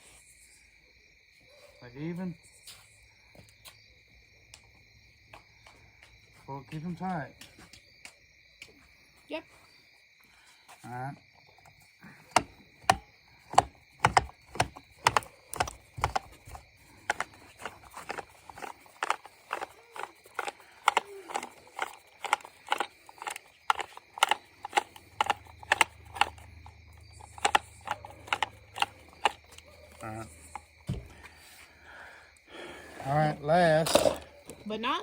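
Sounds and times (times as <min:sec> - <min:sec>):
trimmer head clicking: 0:12.3 - 0:30.7.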